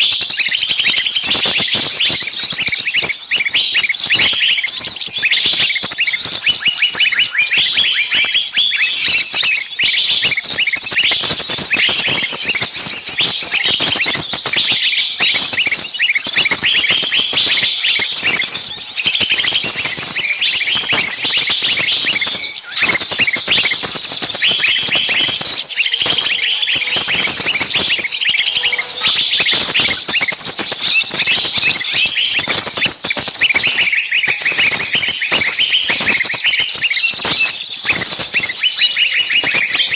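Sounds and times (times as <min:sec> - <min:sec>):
chorus of shrill songbird calls: 0:00.0 - 0:39.9.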